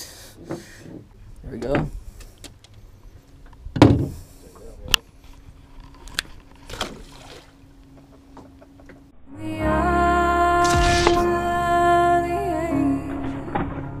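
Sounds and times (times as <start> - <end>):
knocks and clicks on a boat: 0.4 - 2.7, 7.8 - 9.1
background music: 9.2 - 14.0.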